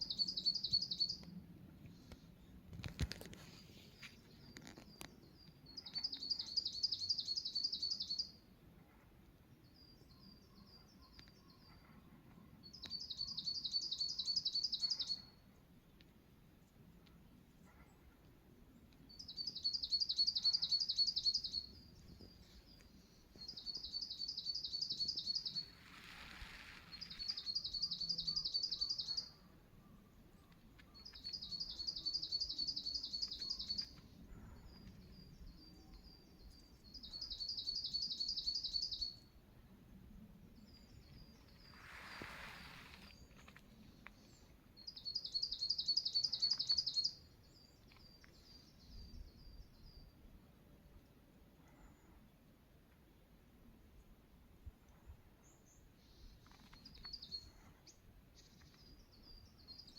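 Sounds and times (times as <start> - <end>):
soft high bird chirps: 0.0 - 1.3, 12.6 - 15.4, 19.1 - 34.0, 40.6 - 50.2.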